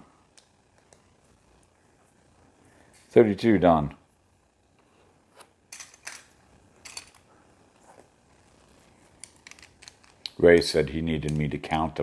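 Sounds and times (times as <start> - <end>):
plastic pieces clicking: 9.2 - 10.4.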